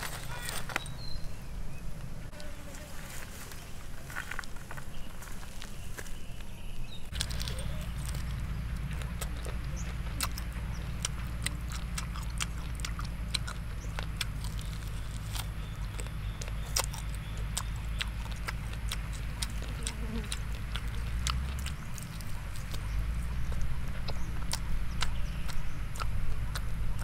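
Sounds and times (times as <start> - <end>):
low rumble: 7.0 - 27.0
person chewing: 7.1 - 27.0.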